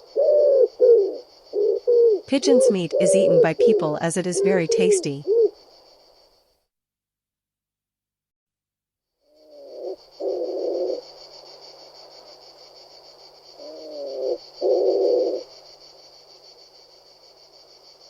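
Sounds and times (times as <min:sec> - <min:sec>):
pigeon cooing: 0:00.0 - 0:05.6, 0:09.4 - 0:11.0, 0:13.6 - 0:15.5.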